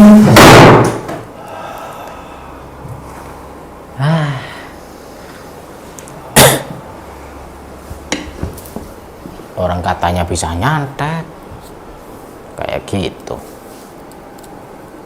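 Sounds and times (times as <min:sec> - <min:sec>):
low steady hum: 0:00.0 - 0:15.0
person grunting: 0:04.0 - 0:04.8.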